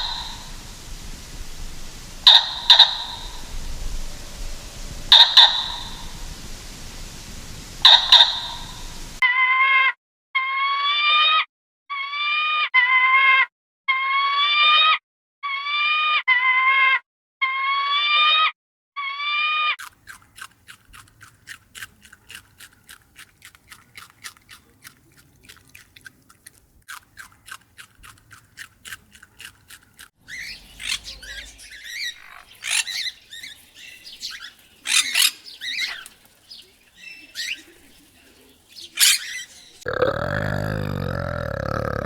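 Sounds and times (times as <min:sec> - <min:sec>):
long pitched animal calls: 0:00.0 - 0:09.2, 0:38.8 - 0:42.0
bird squawks and chirps: 0:02.2 - 0:03.6, 0:05.0 - 0:06.2, 0:07.8 - 0:08.9, 0:30.2 - 0:39.9.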